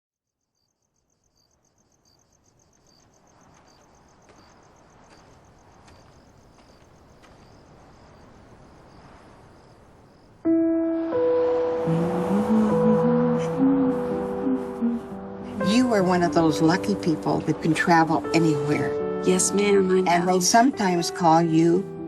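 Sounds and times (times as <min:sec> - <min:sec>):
crickets chirping: 0:00.2 - 0:21.7
sustained music chord: 0:10.5 - 0:22.0.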